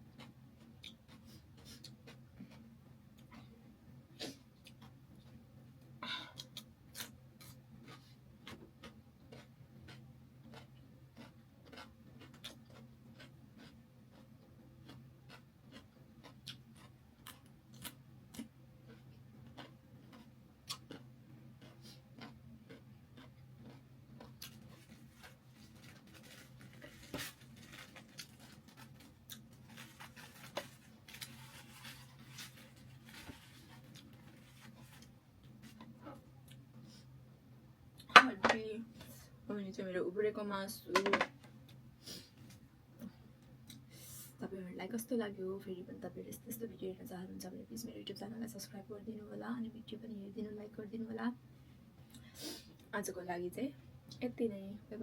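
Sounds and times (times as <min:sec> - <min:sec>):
faint steady hum: 0:00.0 - 0:55.0
chewing clicks and smacks: 0:06.4 - 0:21.0, 0:21.6 - 0:24.8.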